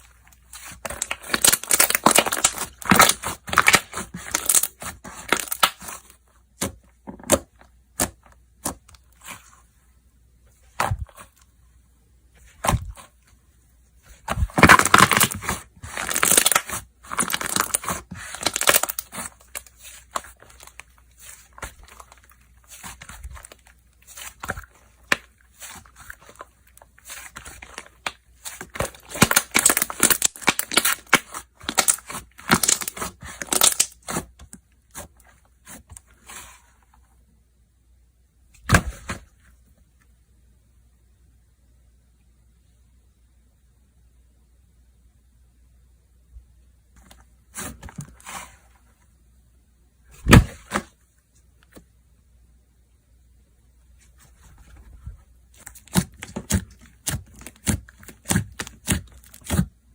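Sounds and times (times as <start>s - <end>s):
slime crackling and popping: 0.4s - 6.0s, 14.1s - 34.3s, 55.6s - 59.7s.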